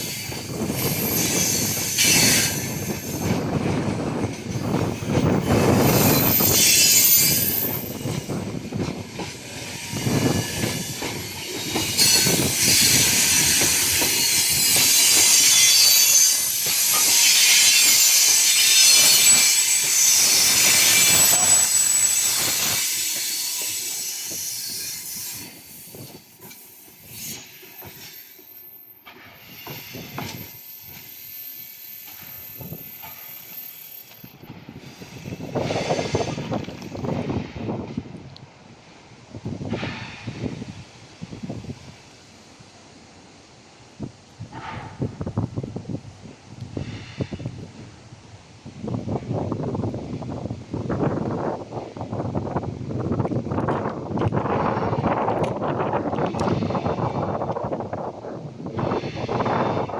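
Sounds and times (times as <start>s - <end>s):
train wheels rumbling on rails: 0.0s - 59.9s
high-pitched wheel squeal: 4.7s - 8.2s, 11.9s - 25.8s.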